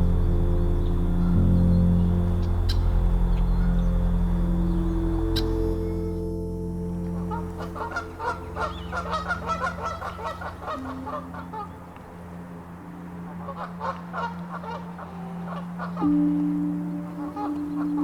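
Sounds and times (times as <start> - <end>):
low musical drone: 0.0 - 18.0
geese honking: 7.0 - 18.0.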